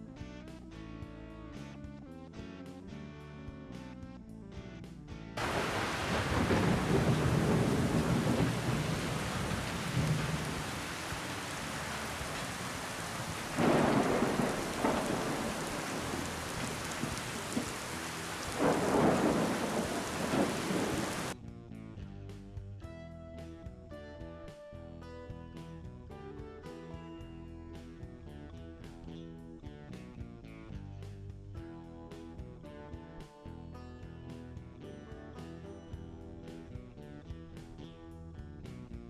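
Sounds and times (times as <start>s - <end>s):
heavy rain: 5.4s - 21.4s
rolling thunder: 5.4s - 21.4s.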